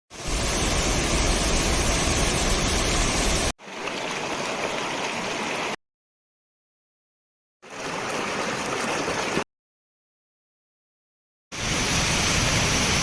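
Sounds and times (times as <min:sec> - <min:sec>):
waterfall rushing: 0:00.2 - 0:05.7, 0:11.6 - 0:13.0.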